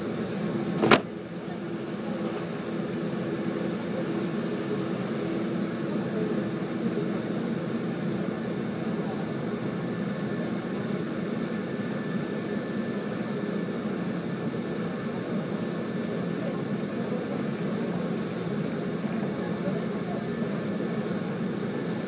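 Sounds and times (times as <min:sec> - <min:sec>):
constant hum: 0:00.0 - 0:22.0.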